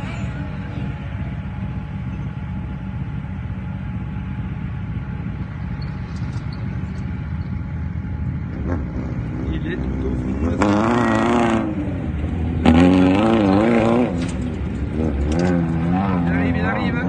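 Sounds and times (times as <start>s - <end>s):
motorcycle engine rumbling: 0.0s - 17.0s.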